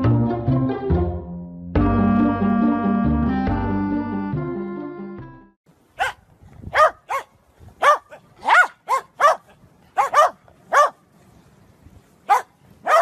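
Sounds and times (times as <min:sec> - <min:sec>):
dog barking: 0:06.0 - 0:11.0, 0:12.3 - 0:13.0.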